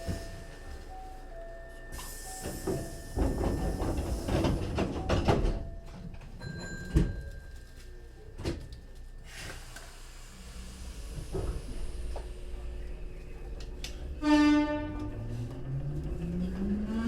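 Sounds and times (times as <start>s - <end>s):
train running rumble: 0.0s - 6.3s, 9.6s - 17.0s
train knocks and clunks: 0.0s - 7.5s, 11.1s - 12.4s.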